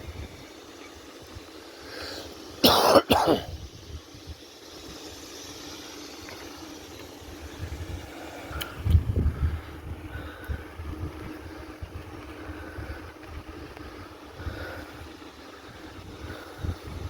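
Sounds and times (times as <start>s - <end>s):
wind and riding noise: 0.0s - 2.6s, 3.3s - 17.0s
person coughing: 2.6s - 3.5s.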